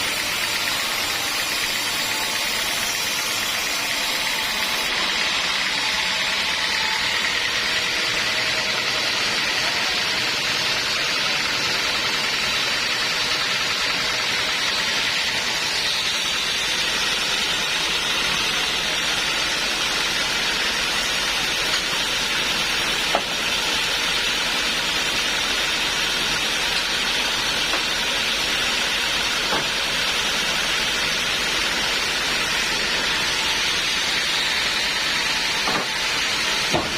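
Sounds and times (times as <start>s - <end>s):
band sawmill hissing: 0.0s - 36.9s.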